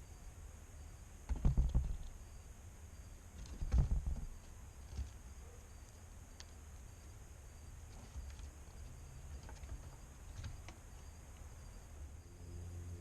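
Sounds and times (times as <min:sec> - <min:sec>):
high insect chirring: 0:00.0 - 0:13.0
squirrel knocking and scraping: 0:01.2 - 0:02.4, 0:03.2 - 0:06.8, 0:07.6 - 0:11.8.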